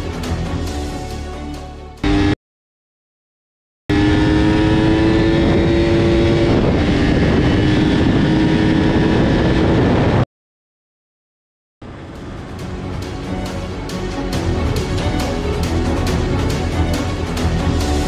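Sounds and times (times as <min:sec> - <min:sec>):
motorcycle engine at high revs: 0:02.0 - 0:02.4, 0:03.9 - 0:10.2
heavy wind noise: 0:04.8 - 0:10.2.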